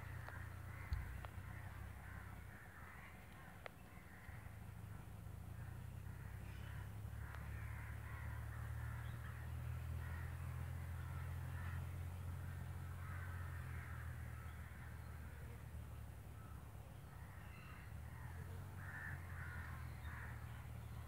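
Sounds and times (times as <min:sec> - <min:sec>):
harsh bird calls: 0:05.7 - 0:21.0.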